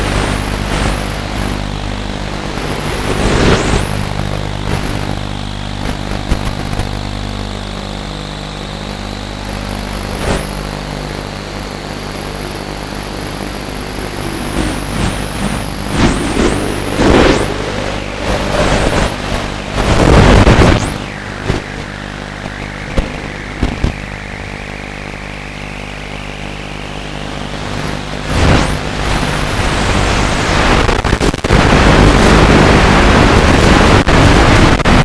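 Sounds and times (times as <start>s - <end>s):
model aircraft motor whine: 1.5s - 30.3s
loud rushing noise: 12.0s - 25.3s.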